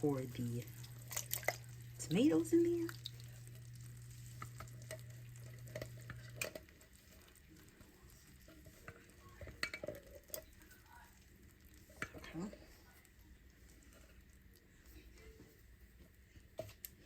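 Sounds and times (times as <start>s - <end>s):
faint sizzle: 0.0s - 17.0s
steady low hum: 0.0s - 17.0s
spoon and can clinking on pot: 8.5s - 10.6s.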